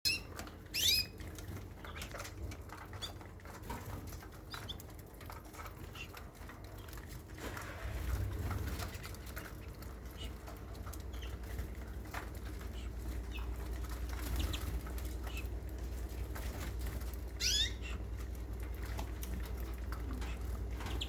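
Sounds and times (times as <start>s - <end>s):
canaries chirping: 0.0s - 21.0s
fluttering wings: 7.3s - 21.0s
small clicks pattering: 8.2s - 21.0s.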